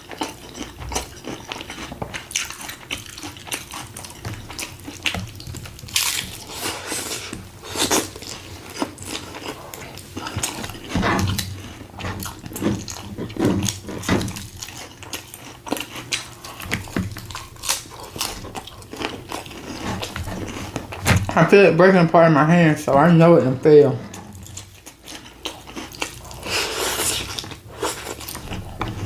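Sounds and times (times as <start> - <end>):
crunchy taco chewing: 0.0 - 21.4, 24.1 - 29.0.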